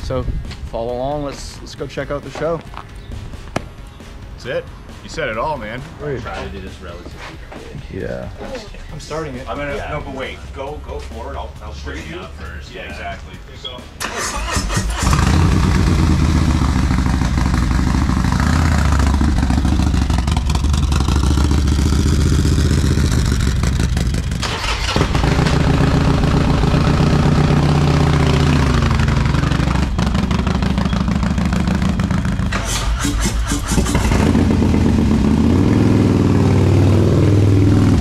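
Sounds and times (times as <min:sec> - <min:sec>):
motorcycle engines revving: 0:14.0 - 0:38.0.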